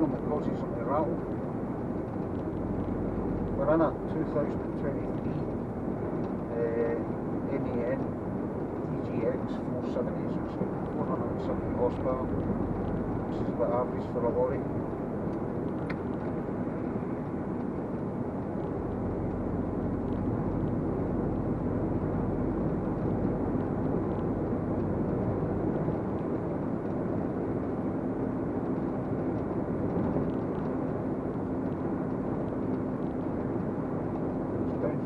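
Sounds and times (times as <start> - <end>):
lorry diesel engine: 0.0 - 35.0
road noise: 0.0 - 35.0.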